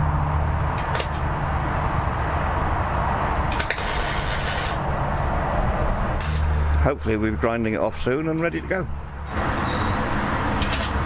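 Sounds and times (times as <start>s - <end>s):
welding arc crackling: 0.8s - 1.4s, 3.3s - 5.1s, 6.1s - 6.6s
welder humming: 3.5s - 4.9s.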